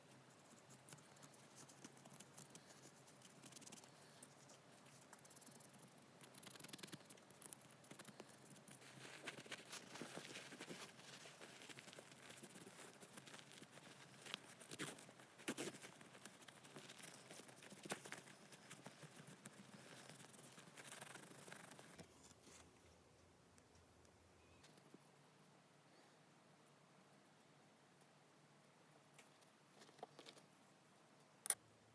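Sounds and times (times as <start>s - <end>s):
scratching and rubbing: 0.1s - 22.7s.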